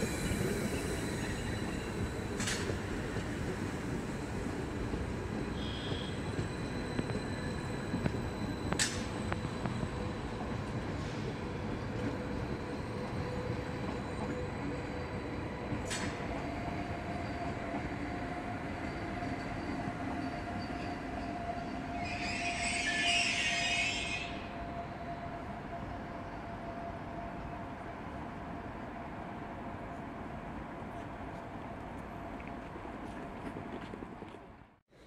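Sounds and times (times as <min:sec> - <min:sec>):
train wheels rumbling on rail: 0:00.0 - 0:24.4.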